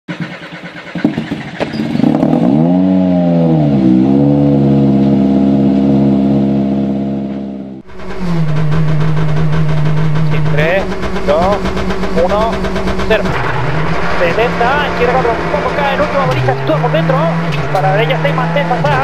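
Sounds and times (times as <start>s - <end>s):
rally car engine idling: 0.1s - 2.3s, 7.2s - 19.0s
engine revving: 0.1s - 19.0s.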